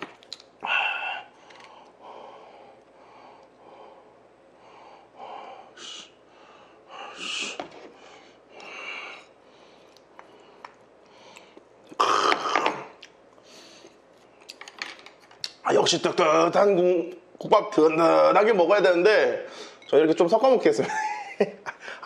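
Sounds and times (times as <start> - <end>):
breaths: 0.6 - 11.7, 13.4 - 14.0, 19.4 - 19.9, 21.8 - 22.0.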